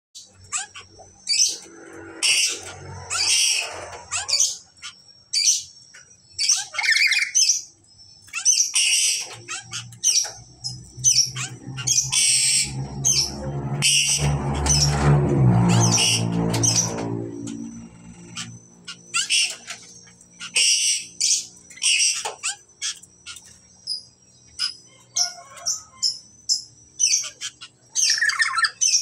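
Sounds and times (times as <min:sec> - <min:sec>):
parrots squawking and screeching: 0:00.2 - 0:29.0
low steady hum: 0:09.1 - 0:24.8.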